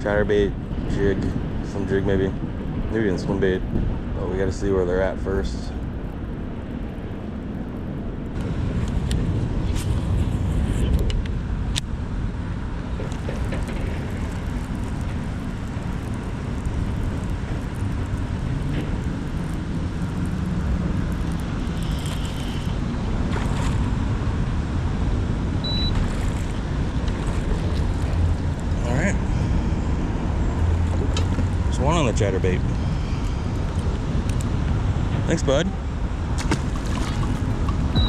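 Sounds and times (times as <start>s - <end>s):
steady low rumble: 0.0s - 38.0s
faint clicks and ticks: 13.0s - 22.8s.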